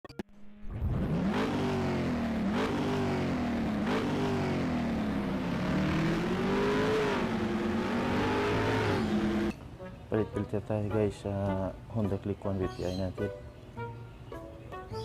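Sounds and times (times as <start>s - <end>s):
vehicle engine revving: 0.4s - 9.5s.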